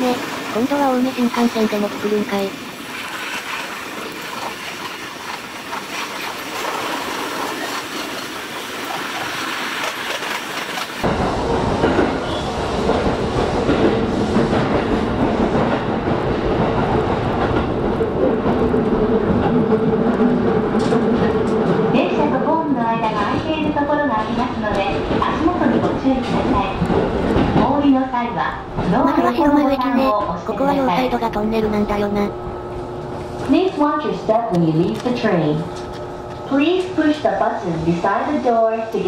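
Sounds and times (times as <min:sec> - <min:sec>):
train wheels running on rails: 0:00.0 - 0:29.2
steady hum: 0:29.0 - 0:33.6.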